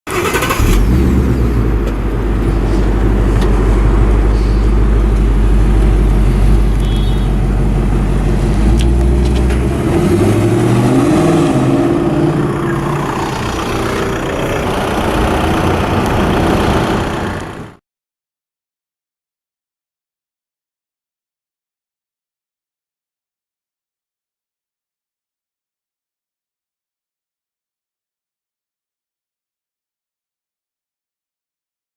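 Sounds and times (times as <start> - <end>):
car engine starting and idling: 0.1 - 17.8.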